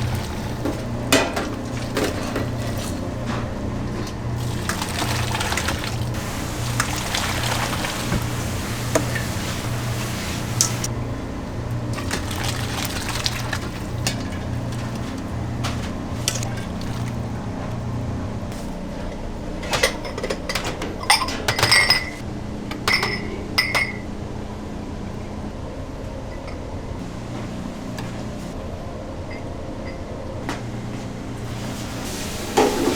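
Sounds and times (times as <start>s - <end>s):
dishes clinking: 0.0s - 10.9s, 12.0s - 17.3s, 19.6s - 22.2s, 22.8s - 24.1s
kitchen clatter: 0.0s - 11.0s, 11.9s - 17.4s, 19.6s - 22.2s, 22.8s - 24.1s, 32.0s - 32.9s
steady low hum: 0.0s - 31.4s
running water hiss: 4.4s - 10.9s.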